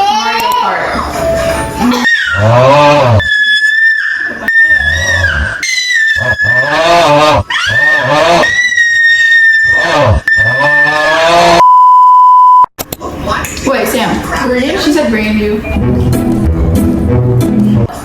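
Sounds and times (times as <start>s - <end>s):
voice-like wails bending in pitch: 0.8s - 11.6s
censor bleep: 10.3s - 12.7s.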